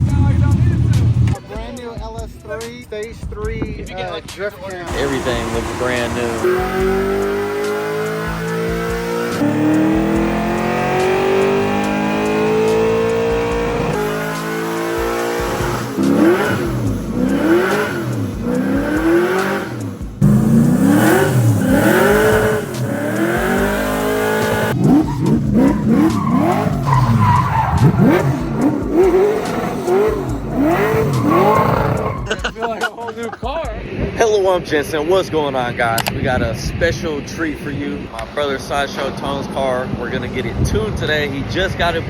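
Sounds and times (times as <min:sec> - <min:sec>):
car engine revving: 0:00.0 - 0:01.4, 0:04.8 - 0:32.6
tyres squealing: 0:04.8 - 0:32.6.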